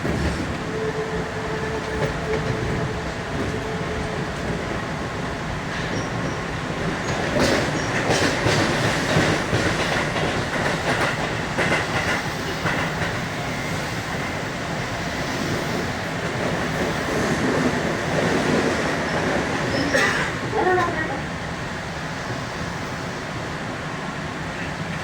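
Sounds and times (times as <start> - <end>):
train wheels rumbling on rail: 0.0 - 25.0
wheels clacking over rail joints: 1.8 - 14.4.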